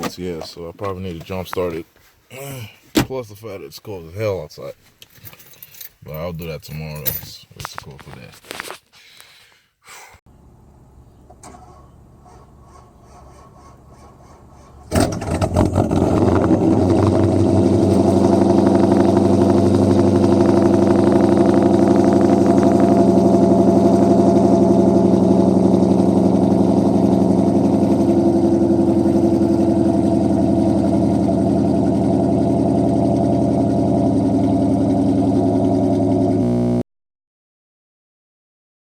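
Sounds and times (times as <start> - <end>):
car engine starting and idling: 10.5 - 14.2, 14.8 - 36.8.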